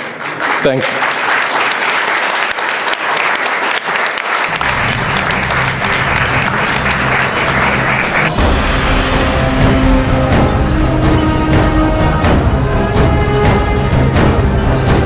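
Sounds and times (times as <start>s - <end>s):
audience applauding: 0.0s - 15.0s
low music: 4.5s - 15.0s.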